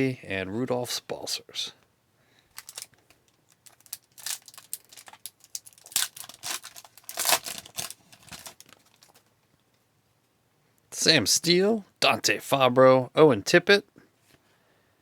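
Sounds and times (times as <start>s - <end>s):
foil wrapper crinkling and tearing: 2.5s - 9.3s.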